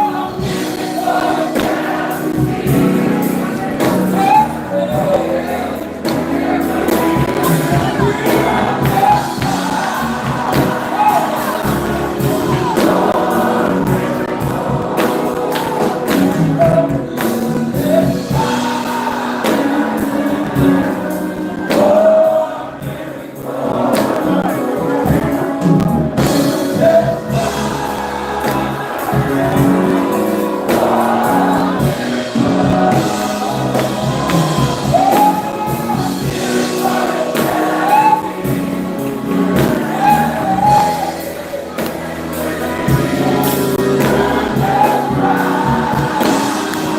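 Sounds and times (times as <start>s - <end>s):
percussive beat: 0.0s - 22.2s, 22.8s - 46.9s
instrumental accompaniment: 0.0s - 46.9s
voices singing together: 0.0s - 46.9s.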